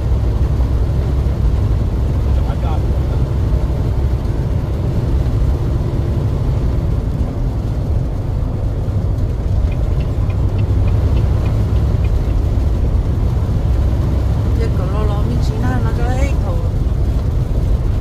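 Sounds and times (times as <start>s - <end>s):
truck engine rumble: 0.0s - 18.0s.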